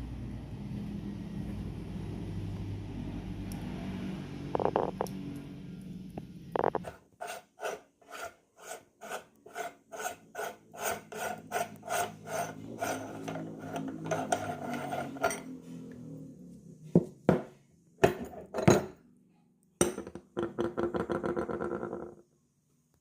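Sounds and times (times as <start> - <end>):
low hum: 0.0 - 6.9
meat grinder rasping scrape: 6.7 - 15.5.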